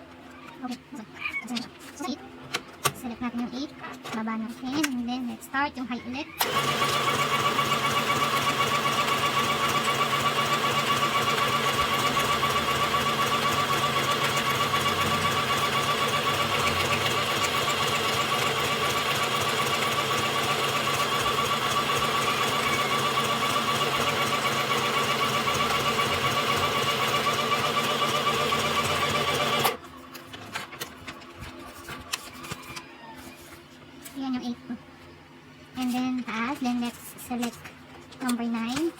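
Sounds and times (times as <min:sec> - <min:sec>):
sewing machine stitching: 0:06.4 - 0:29.8.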